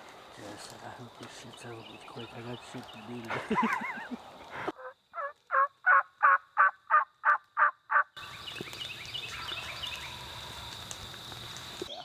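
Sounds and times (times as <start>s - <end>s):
turkey yelps: 4.7s - 8.1s.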